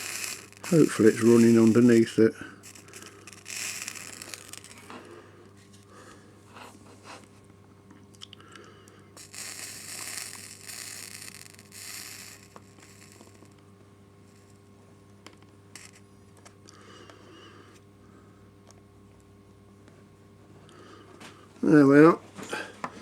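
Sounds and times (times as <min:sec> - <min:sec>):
soldering iron scraping metal rail: 0:00.0 - 0:05.1, 0:09.2 - 0:13.6
solder sizzling: 0:00.0 - 0:05.2, 0:09.2 - 0:14.6, 0:15.7 - 0:16.1.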